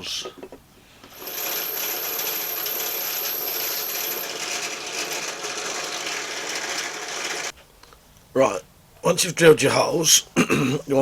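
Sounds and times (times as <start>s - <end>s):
power drill cutting metal: 1.1s - 7.5s.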